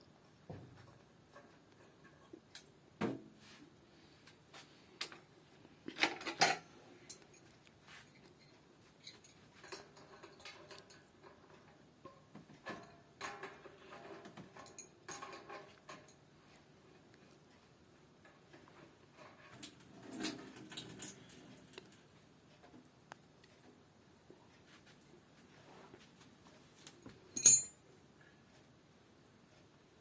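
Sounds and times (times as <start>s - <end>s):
metal tools clinking: 6.0s - 11.7s, 12.6s - 16.2s, 27.3s - 27.8s.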